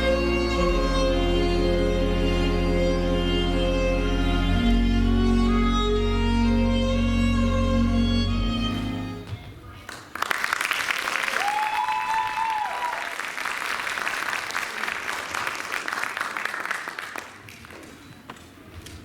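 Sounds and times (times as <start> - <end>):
audience applauding: 9.8 - 18.3.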